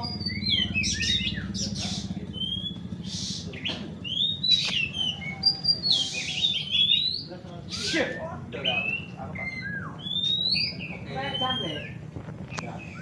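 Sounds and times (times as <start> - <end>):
steady low rumble: 0.0 - 7.8
songbirds singing: 0.0 - 13.0.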